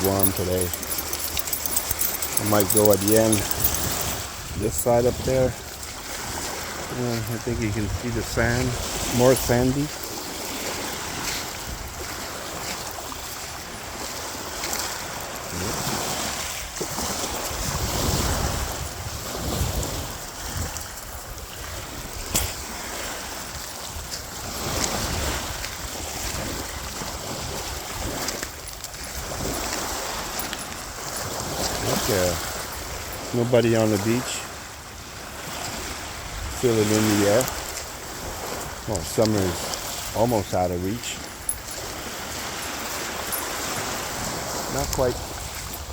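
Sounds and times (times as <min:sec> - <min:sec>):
wind buffeting microphone: 0:00.0 - 0:33.4
small waves breaking on beach: 0:00.0 - 0:45.9.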